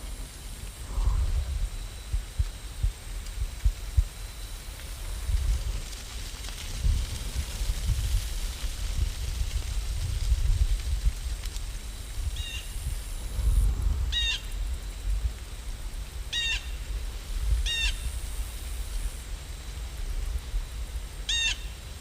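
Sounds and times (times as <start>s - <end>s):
low rumble: 0.0s - 4.2s
steady hiss: 0.0s - 22.0s.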